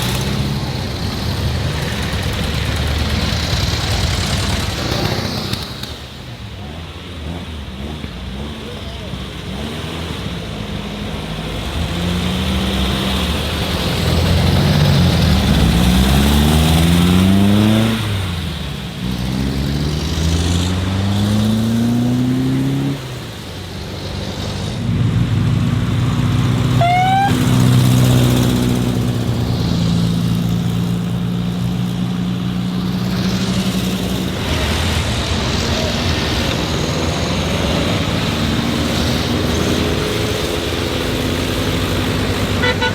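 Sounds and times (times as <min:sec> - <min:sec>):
car engine revving: 0:00.0 - 0:42.9
short rising whistle: 0:26.8 - 0:27.7.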